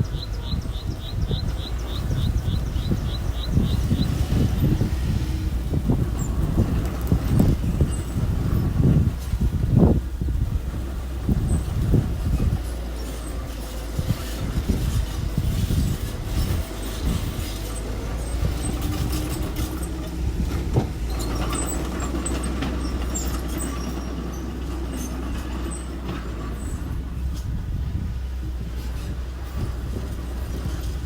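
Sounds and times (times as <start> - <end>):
machinery engine running: 0.0 - 31.0
knocks and clanks: 16.0 - 27.6.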